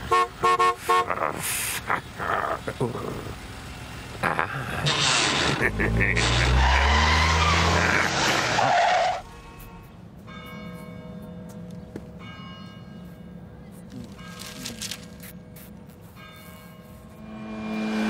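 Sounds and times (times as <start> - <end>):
tyres skidding: 1.8 - 10.0
church bells ringing: 9.9 - 17.7
low engine note: 17.0 - 18.0.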